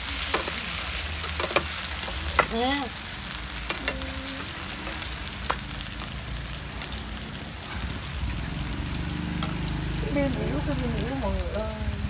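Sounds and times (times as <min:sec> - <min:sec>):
tofu sizzling in hot oil: 0:00.0 - 0:12.0
metal tongs clicking on pan: 0:01.2 - 0:02.6.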